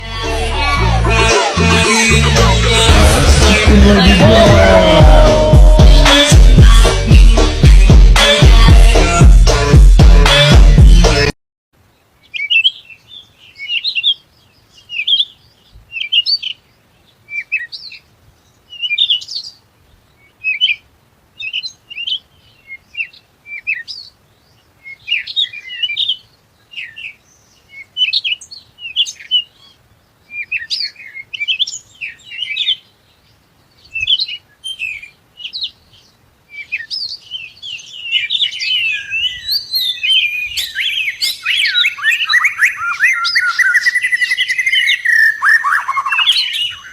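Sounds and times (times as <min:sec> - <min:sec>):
small birds chirping: 0:11.8 - 0:46.9.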